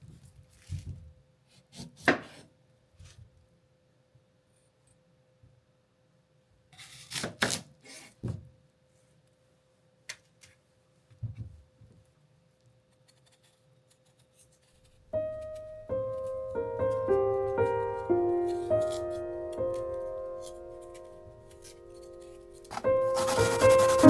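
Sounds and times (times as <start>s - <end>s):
soft knock: 11.2s - 11.6s
piano music: 15.1s - 24.0s.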